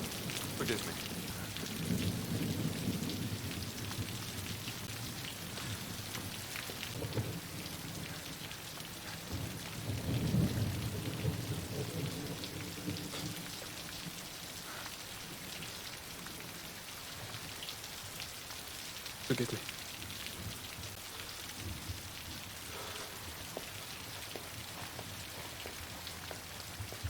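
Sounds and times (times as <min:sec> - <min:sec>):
thunder rumbling: 0:00.0 - 0:16.7
steady rain falling: 0:00.0 - 0:27.0.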